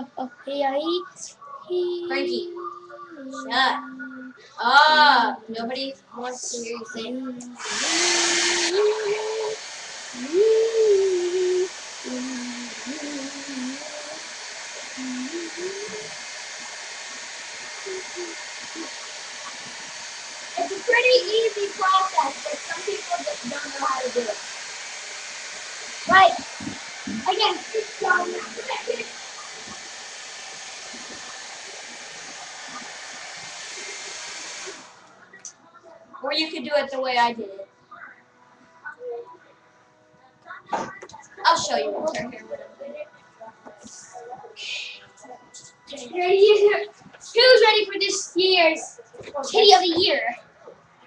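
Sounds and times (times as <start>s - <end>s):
girl humming softly: 2.0s - 4.4s, 10.2s - 14.2s, 15.0s - 16.1s
steady hiss: 7.6s - 24.4s, 25.0s - 35.2s
hair dryer blowing: 7.6s - 35.1s.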